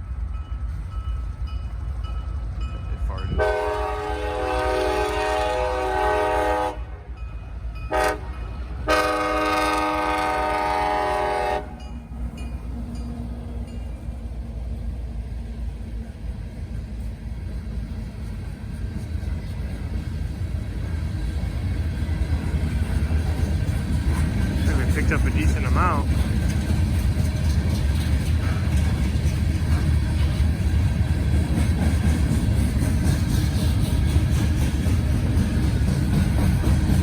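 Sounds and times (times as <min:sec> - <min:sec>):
train rumbling past: 0:00.0 - 0:37.0
locomotive horn blasts: 0:03.3 - 0:07.1, 0:07.9 - 0:11.8.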